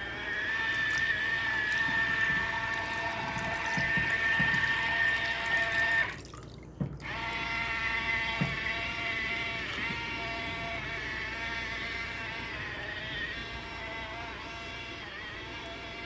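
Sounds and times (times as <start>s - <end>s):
washing machine motor whine: 0.0s - 16.0s
water sloshing: 0.7s - 10.8s.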